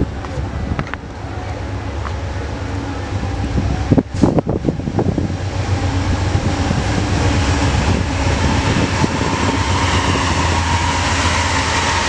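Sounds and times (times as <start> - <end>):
distant train rumble: 0.0 - 12.0
wind on microphone: 3.0 - 12.0.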